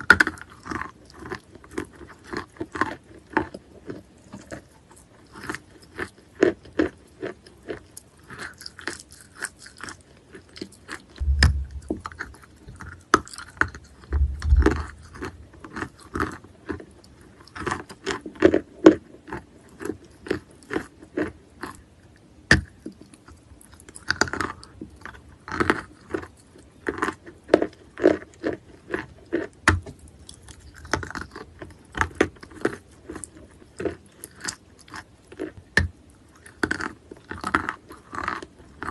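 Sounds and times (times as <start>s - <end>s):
low thuds: 11.2s - 12.8s, 13.6s - 15.6s.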